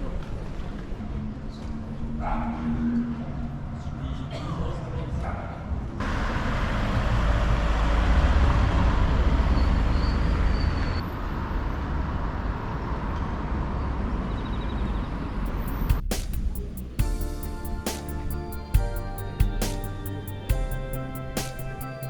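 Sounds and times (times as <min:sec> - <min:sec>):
vehicle rumbling past: 0:06.0 - 0:16.1.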